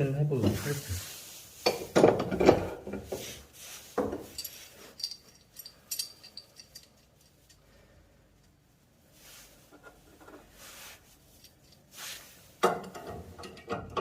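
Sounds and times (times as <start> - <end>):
metal tools clunking and scraping: 1.6 - 7.6, 12.6 - 14.0
light metallic clinks: 4.2 - 7.7.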